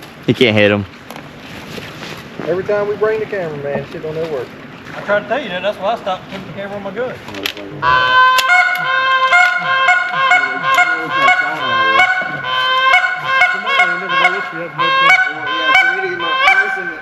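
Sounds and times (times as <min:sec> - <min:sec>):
steady held tones: 0:07.7 - 0:17.0
goose-like honking: 0:07.8 - 0:17.0.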